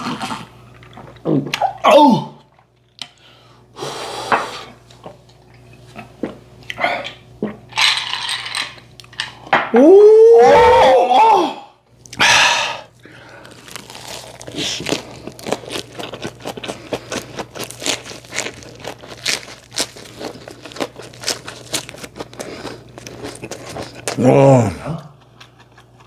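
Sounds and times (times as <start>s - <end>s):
wet chewing crunches: 13.1s - 24.4s.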